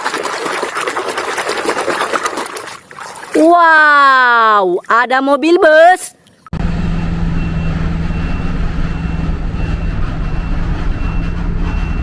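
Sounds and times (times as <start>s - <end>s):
heavy vehicle engine hum: 6.6s - 12.0s
high reversing beep: 6.6s - 12.0s.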